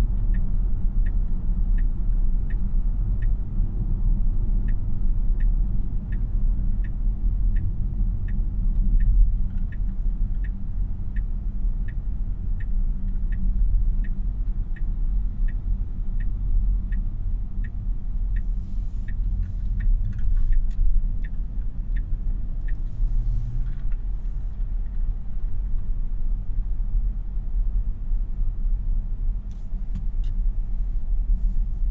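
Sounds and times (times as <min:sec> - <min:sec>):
turn-signal indicator ticking: 0:00.1 - 0:25.1.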